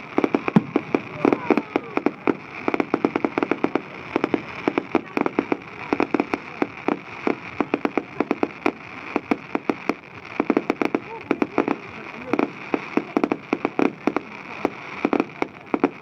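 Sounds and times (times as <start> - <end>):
fireworks bangs and pops: 0.0 - 16.0.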